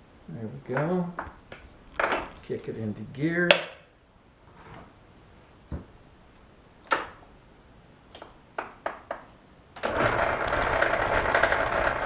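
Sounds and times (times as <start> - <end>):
lathe gears whirring: 9.8 - 12.0.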